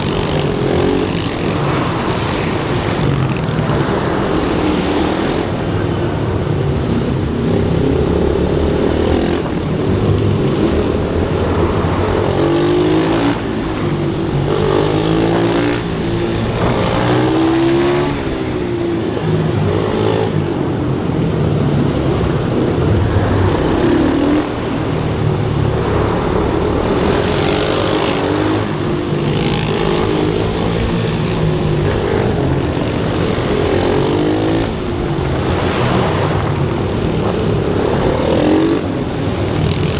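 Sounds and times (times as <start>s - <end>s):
pit bike engines revving: 0.0s - 39.9s.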